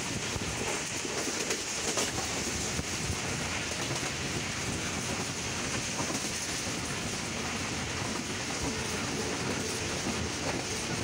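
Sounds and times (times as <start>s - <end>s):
wheels rushing on rails: 0.0s - 11.0s.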